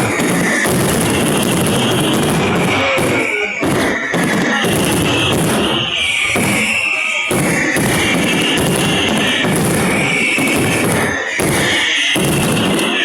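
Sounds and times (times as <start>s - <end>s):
fireworks exploding and crackling: 0.0s - 13.0s.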